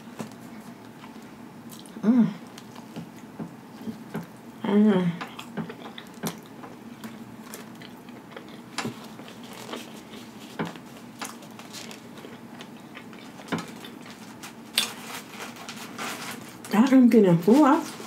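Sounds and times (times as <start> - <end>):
paper rustling: 8.9 - 12.2, 13.4 - 18.0.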